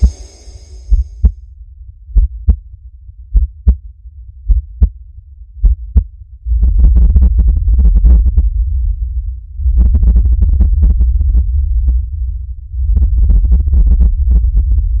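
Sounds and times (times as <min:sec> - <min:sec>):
heartbeat thumps: 0:00.0 - 0:01.4, 0:02.1 - 0:02.7, 0:03.3 - 0:05.0, 0:05.6 - 0:08.6
low rumble with rapid crackling: 0:00.0 - 0:01.4, 0:02.2 - 0:15.0.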